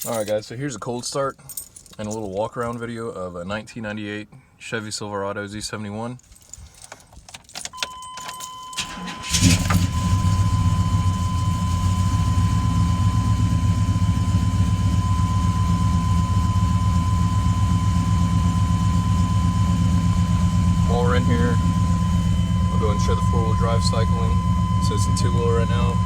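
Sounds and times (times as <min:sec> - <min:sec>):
truck engine starting and idling: 0:08.7 - 0:26.0.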